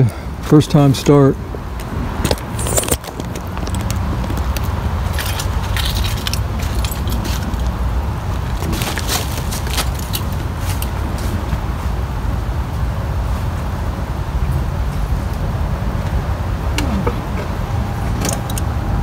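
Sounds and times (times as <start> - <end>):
car engine idling: 15.9 - 19.0.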